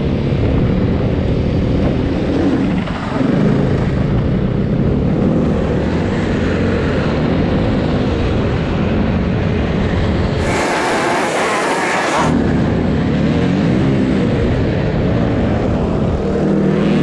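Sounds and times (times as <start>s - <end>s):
snowbike engine running: 10.4s - 12.4s.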